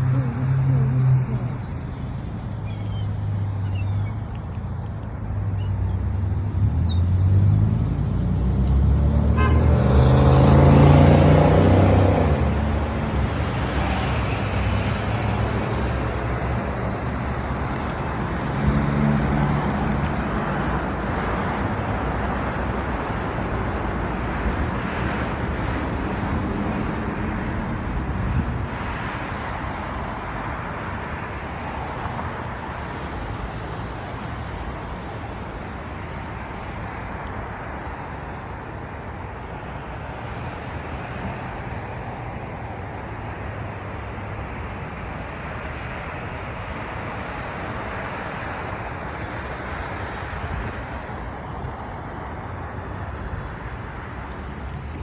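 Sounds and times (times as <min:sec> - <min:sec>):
motor vehicles passing: 0:00.0 - 0:55.0
faint high bird chirps: 0:02.6 - 0:04.2, 0:05.6 - 0:06.1, 0:06.8 - 0:07.8.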